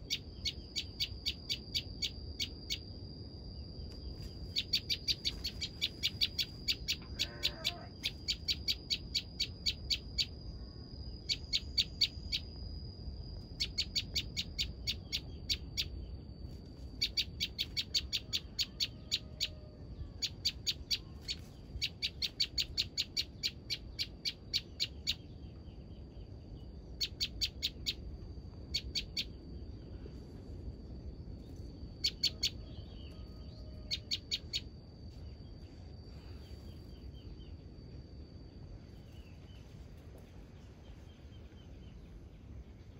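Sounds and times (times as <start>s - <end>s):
bird rapid sharp chirps: 4.5s - 10.3s, 21.8s - 25.2s.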